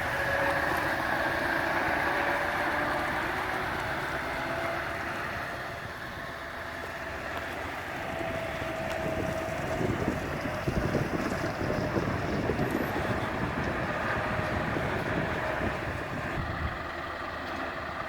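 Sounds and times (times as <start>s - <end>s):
truck engine running: 0.0s - 18.0s
wind noise: 7.5s - 17.1s.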